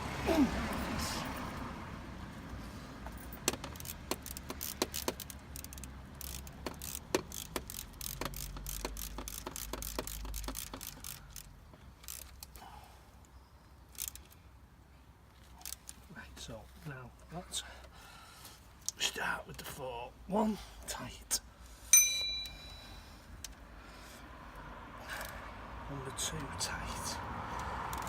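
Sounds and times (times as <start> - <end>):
socket ratchet clicking: 3.3 - 12.6, 27.6 - 28.0
metallic clinks of tools: 21.9 - 23.0.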